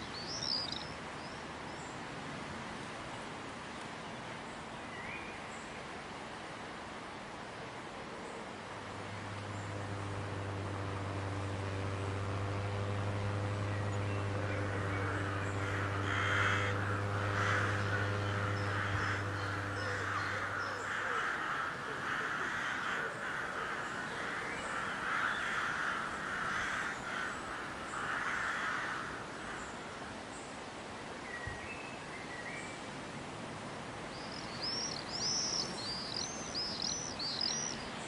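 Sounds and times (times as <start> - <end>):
small birds chirping faintly: 8.2 - 30.6
steady low hum: 8.5 - 30.2
bird harsh calls: 10.6 - 29.8.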